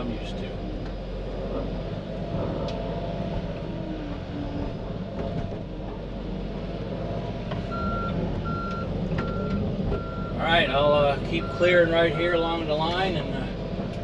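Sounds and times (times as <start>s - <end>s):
excavator running: 0.0s - 14.0s
travel alarm beeping: 7.7s - 10.4s.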